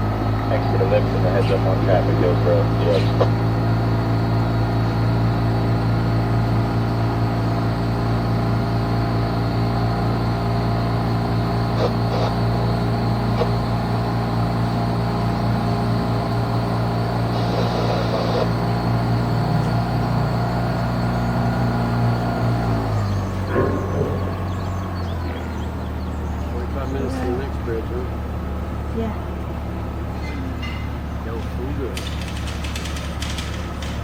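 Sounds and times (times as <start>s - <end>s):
boat engine humming: 0.0s - 34.0s.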